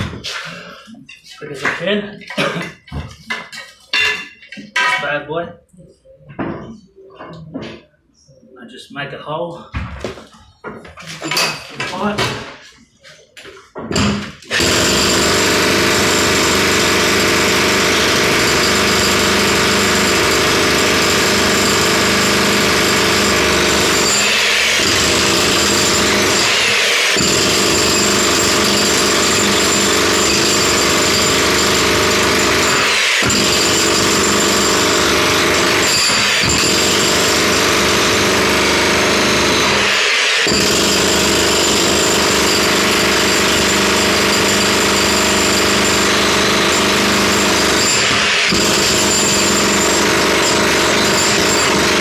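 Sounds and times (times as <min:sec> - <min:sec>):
jackhammer hammering: 0:13.9 - 0:52.0.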